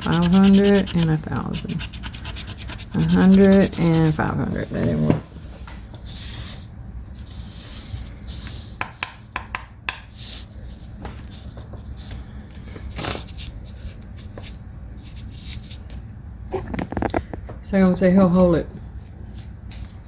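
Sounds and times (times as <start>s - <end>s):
paper rustling scrapes: 0.0s - 4.2s.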